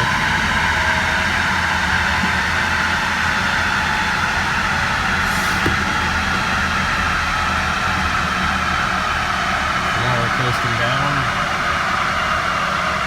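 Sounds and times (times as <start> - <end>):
tires and rollers spinning down: 5.0 - 7.5.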